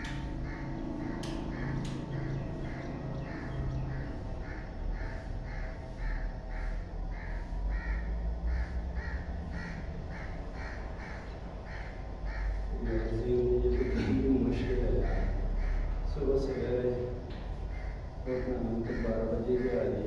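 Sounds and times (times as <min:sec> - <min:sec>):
low rumble: 0:00.0 - 0:14.0
bird giving harsh calls: 0:00.0 - 0:20.0.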